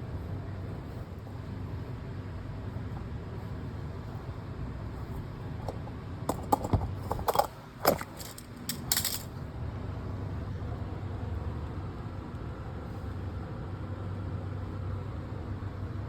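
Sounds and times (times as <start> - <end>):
low background hum: 0.0 - 16.0
metal tools clinking: 6.3 - 9.3.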